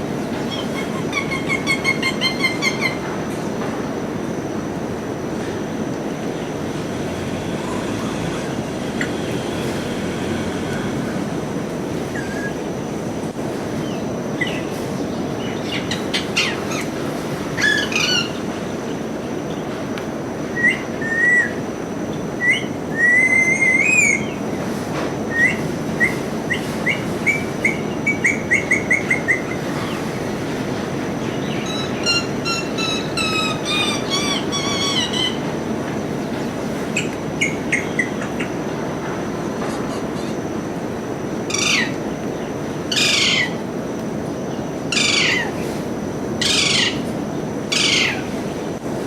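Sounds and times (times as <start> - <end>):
steady background noise: 0.0 - 49.0
parrot whistling and chirping: 20.6 - 21.5, 22.4 - 24.4, 25.3 - 29.9, 31.6 - 35.4.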